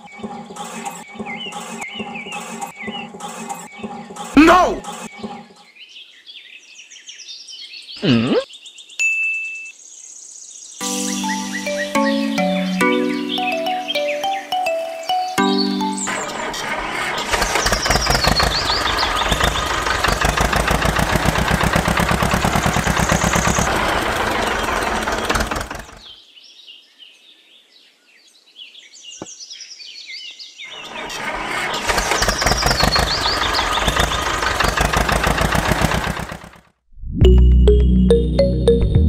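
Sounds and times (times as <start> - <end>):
birds chirping: 0.0 - 36.4
small engine putter: 16.1 - 26.1, 30.8 - 36.7.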